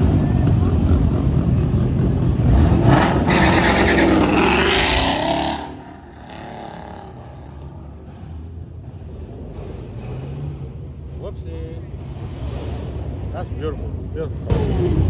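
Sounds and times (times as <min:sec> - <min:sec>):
vehicle engine revving: 0:00.0 - 0:11.0.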